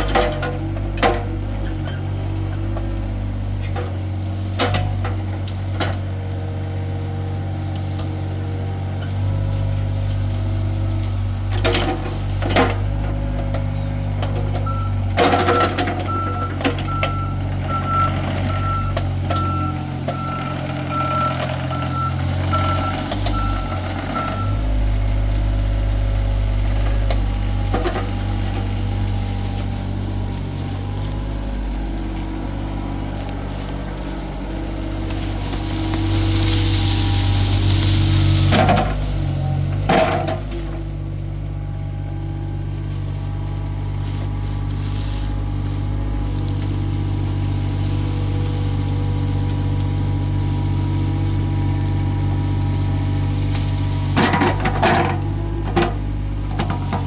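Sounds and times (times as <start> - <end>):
bucket and arm clanking: 0.0 - 57.0
diesel excavator engine running: 0.0 - 57.0
travel alarm beeping: 14.7 - 24.6.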